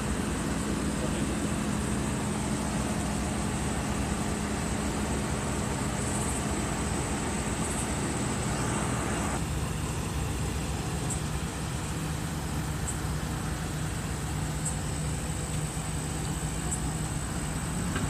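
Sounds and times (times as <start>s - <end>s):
faint high whine: 0.0s - 18.0s
vehicle engine idling: 0.0s - 18.0s.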